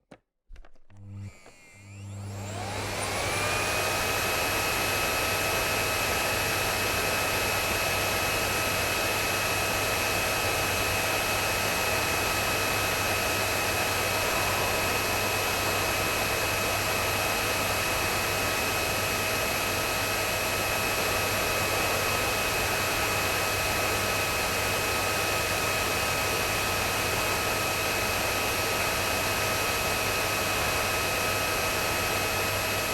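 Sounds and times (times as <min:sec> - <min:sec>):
vacuum cleaner switch click: 0:00.5 - 0:02.3
vacuum cleaner motor whine: 0:00.6 - 0:32.9.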